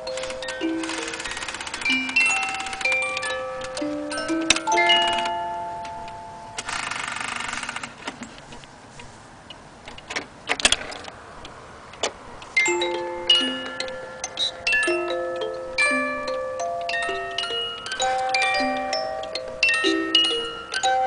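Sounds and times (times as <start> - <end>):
clockwork whirring rattle: 0.0 - 5.4, 6.6 - 8.1, 12.6 - 21.0
music box tune: 0.0 - 7.8, 12.6 - 21.0
clock mechanism clicks: 0.0 - 8.6, 9.5 - 21.0.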